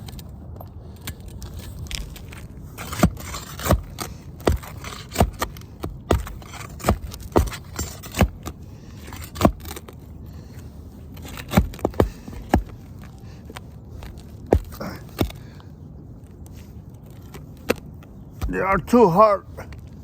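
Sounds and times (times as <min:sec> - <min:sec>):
tool scraping roof shingles: 0:00.0 - 0:15.6
sharp knocks and cracks: 0:01.0 - 0:08.6, 0:11.2 - 0:12.8.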